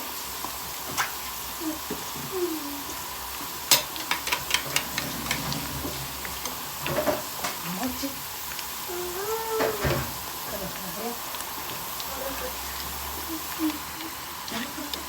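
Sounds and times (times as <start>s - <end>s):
food sizzling in hot oil: 0.0s - 15.0s
spoon clicking and scraping pot: 3.6s - 5.5s.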